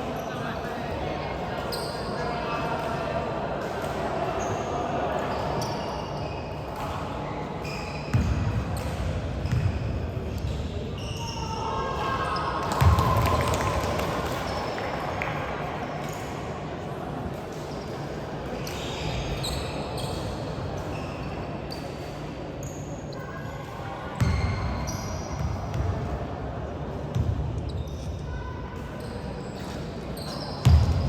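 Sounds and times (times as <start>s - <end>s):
sneakers squeaking on court: 7.6s - 11.4s, 24.2s - 26.0s, 27.1s - 28.2s, 29.0s - 31.0s.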